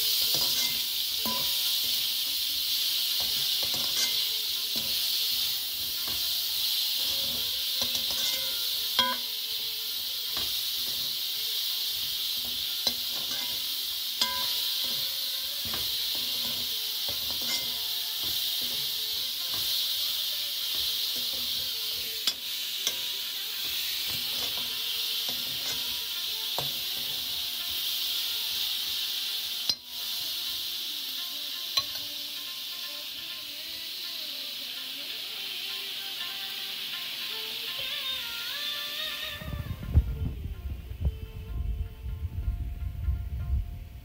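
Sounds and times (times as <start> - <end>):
metal spoon scraping a wok: 0.0 - 9.3, 11.9 - 27.4
food sizzling in hot oil: 0.0 - 41.2.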